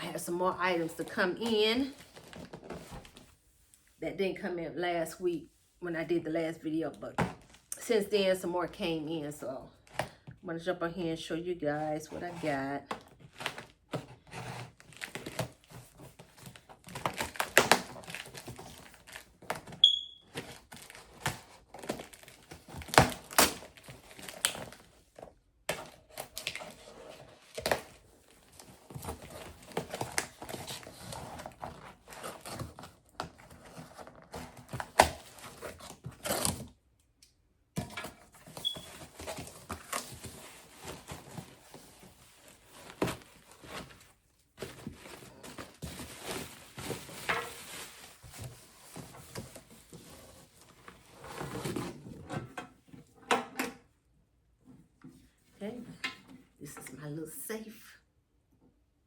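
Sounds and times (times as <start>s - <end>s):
plastic packaging crinkling: 38.5s - 49.0s.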